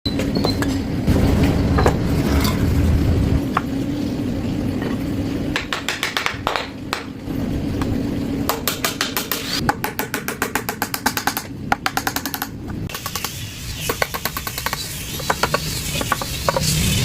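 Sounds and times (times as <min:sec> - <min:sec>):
low rumble with steady hum: 0:00.1 - 0:12.9.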